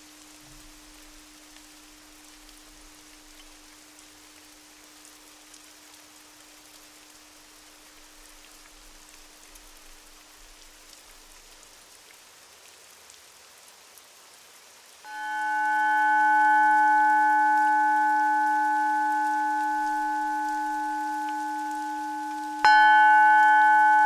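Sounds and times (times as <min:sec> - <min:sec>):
steady rain falling: 0:00.0 - 0:24.0
singing bowl ringing: 0:15.1 - 0:24.0.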